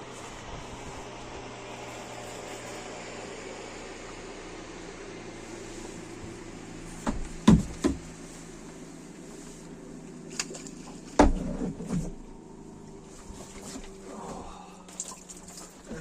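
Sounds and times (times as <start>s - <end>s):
steady low hum: 0.0s - 16.0s
knocks against boat hull: 7.0s - 8.1s, 11.2s - 12.1s.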